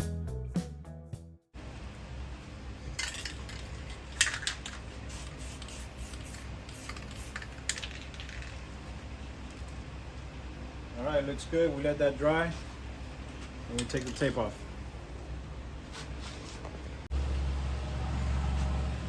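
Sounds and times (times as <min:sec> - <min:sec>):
low steady hum: 0:01.6 - 0:18.2
spray paint can hissing: 0:04.6 - 0:08.6.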